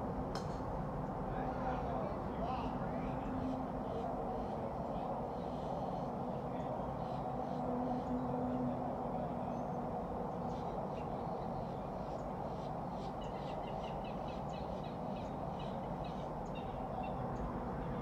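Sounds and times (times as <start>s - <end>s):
small birds chirping: 10.4s - 17.6s.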